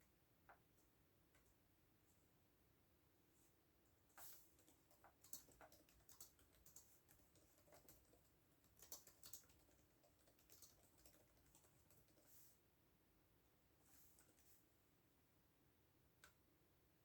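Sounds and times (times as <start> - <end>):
faint keyboard typing: 3.9 - 12.6, 13.9 - 14.7.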